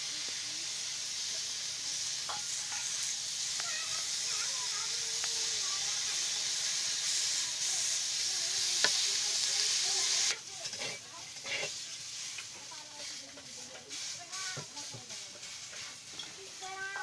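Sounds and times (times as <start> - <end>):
vegetables sizzling in oil: 0.0 - 17.0
metal spatula scraping a wok: 2.2 - 3.2, 8.8 - 16.4.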